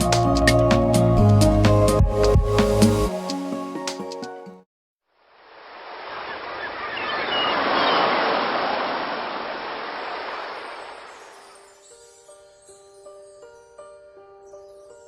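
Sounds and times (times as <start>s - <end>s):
music: 0.0s - 4.7s, 11.5s - 15.0s
wave washing in: 5.3s - 11.6s.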